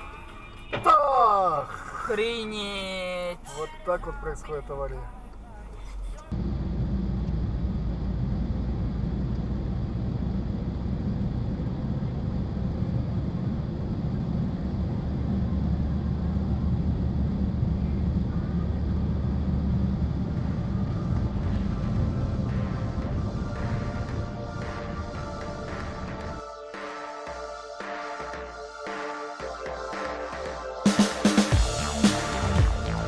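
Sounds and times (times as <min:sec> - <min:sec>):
road noise: 0:00.0 - 0:26.4
vehicle engine drone: 0:00.0 - 0:26.5, 0:30.9 - 0:33.0.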